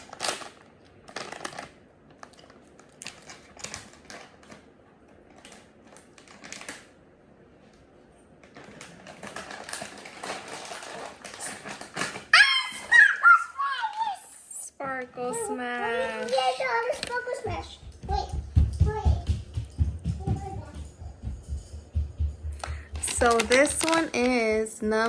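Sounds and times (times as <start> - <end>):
packaging being torn and crinkled: 0.0 - 4.6, 23.0 - 24.5.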